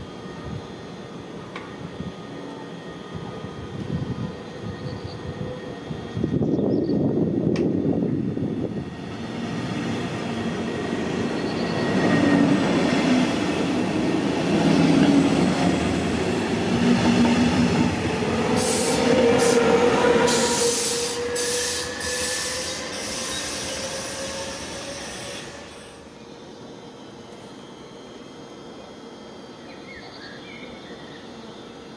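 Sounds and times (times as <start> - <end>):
train wheels rumbling on rails: 1.4 - 26.0
train hiss: 8.6 - 31.9
high wheel squeal: 18.6 - 26.1.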